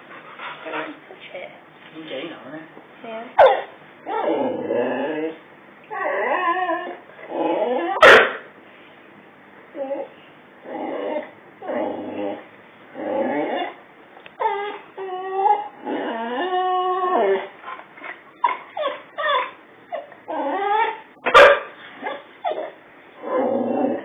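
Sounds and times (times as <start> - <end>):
dog barking: 3.4 - 3.7, 8.0 - 8.5, 21.2 - 21.8
dog whining: 3.4 - 8.2, 9.7 - 13.8, 14.4 - 24.0.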